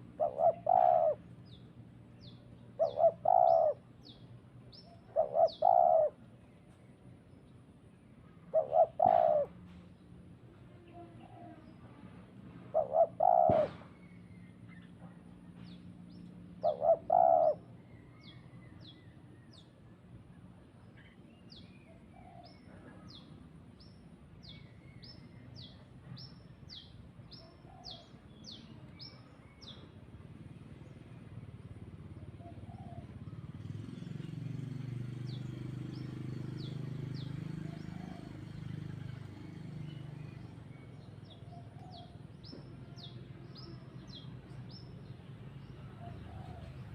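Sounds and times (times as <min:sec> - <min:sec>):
lower bird calls: 0:00.0 - 0:06.3, 0:08.3 - 0:09.6, 0:12.7 - 0:15.0, 0:15.6 - 0:19.6
birds chirping: 0:00.0 - 0:10.2, 0:12.8 - 0:19.9, 0:30.6 - 0:46.9.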